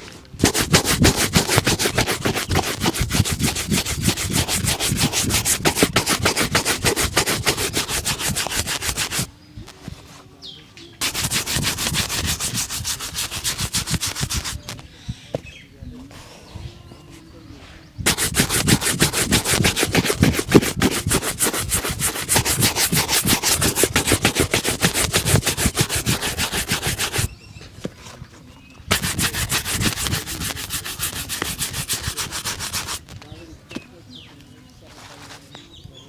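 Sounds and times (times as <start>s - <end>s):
rubbing strokes on a shoe: 0.4s - 9.3s, 11.0s - 14.8s, 18.0s - 27.3s, 28.9s - 33.1s.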